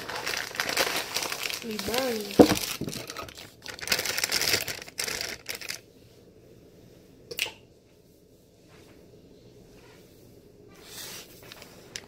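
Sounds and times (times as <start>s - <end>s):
utensils and packaging clattering: 0.0s - 5.8s.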